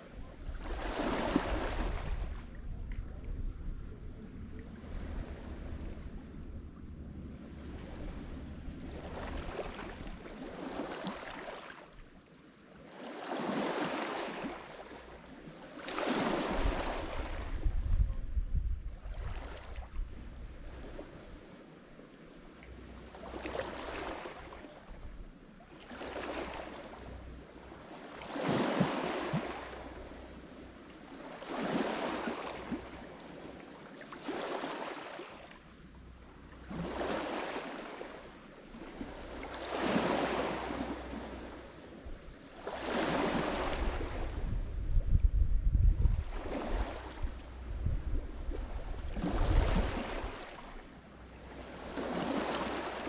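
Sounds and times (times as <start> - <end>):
waves breaking on shore: 0.0 - 53.0
deep low rumble: 2.4 - 9.1, 17.5 - 19.1, 44.3 - 46.3.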